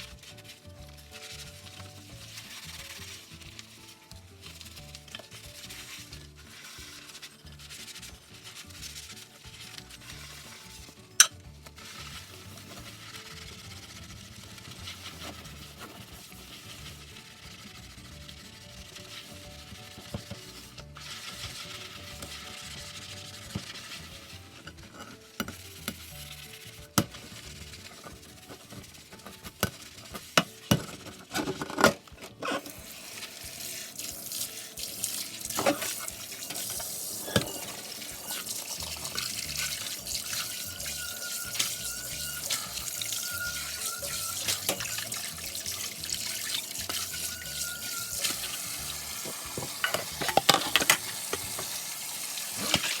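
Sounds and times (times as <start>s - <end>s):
tap water running into sink: 32.6s - 53.0s
dishes clinking: 35.5s - 51.8s, 52.6s - 53.0s.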